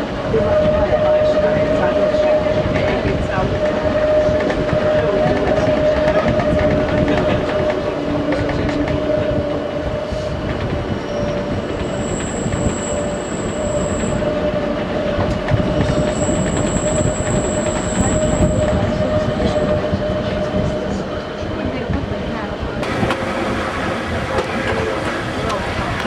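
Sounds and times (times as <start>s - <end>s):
train rumble: 0.0s - 26.0s
high wheel squeal: 9.9s - 20.0s
mid-pitched whine: 22.8s - 26.0s.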